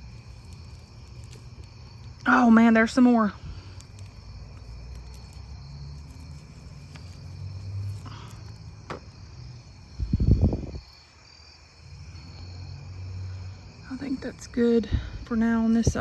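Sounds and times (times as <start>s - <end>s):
insects chirping: 0.0s - 16.0s
low rumble on microphone: 9.8s - 11.0s.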